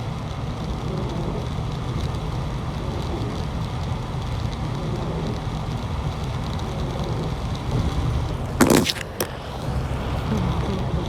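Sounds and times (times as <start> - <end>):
rain: 0.0 - 8.6
traffic: 0.6 - 11.0.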